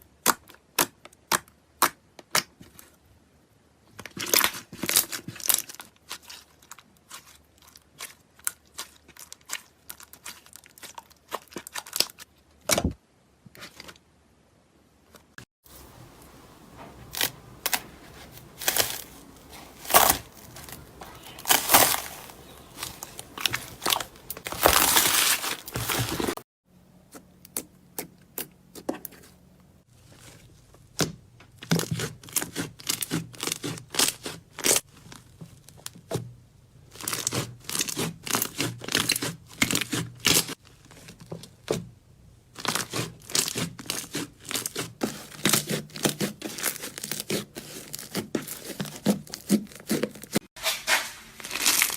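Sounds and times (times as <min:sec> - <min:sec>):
slime crackling and squelching: 0:04.1 - 0:12.3, 0:15.7 - 0:26.4, 0:29.9 - 0:35.9, 0:36.9 - 0:41.3, 0:42.5 - 0:51.9.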